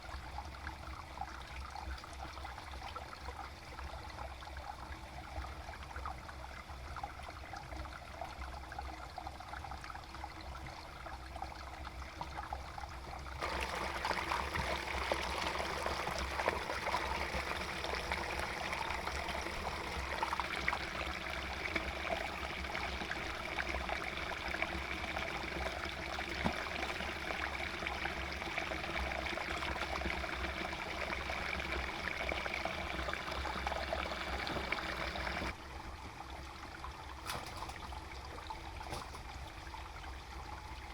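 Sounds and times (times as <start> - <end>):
water running: 13.4 - 35.6.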